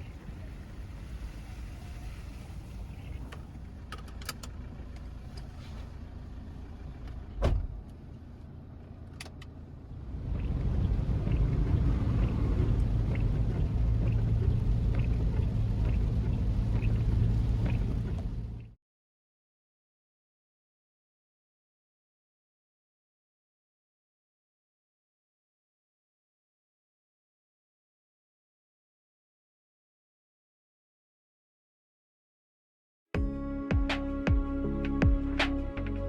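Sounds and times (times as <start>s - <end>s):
motor vehicle rumble: 0.0s - 18.8s, 33.2s - 36.0s
thump: 7.4s - 7.8s.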